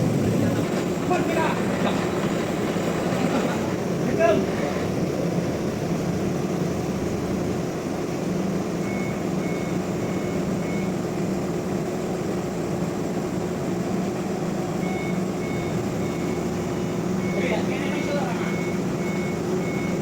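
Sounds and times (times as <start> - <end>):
heavy machinery running: 0.0 - 20.0
reversing alarm beeping: 8.6 - 11.1, 14.7 - 20.0.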